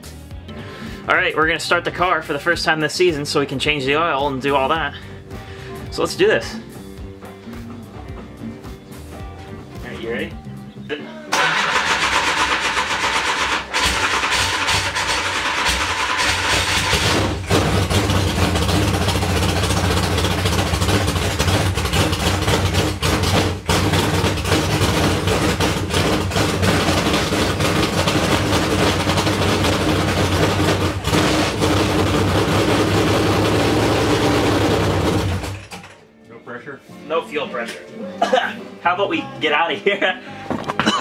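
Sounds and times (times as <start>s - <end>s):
race car engine running loud: 11.4s - 35.7s.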